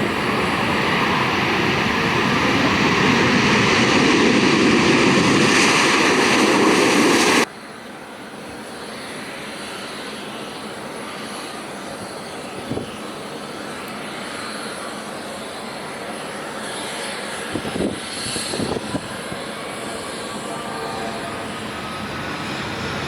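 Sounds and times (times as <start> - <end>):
rising whine: 0.0 - 7.5
jet engines running: 0.0 - 23.0.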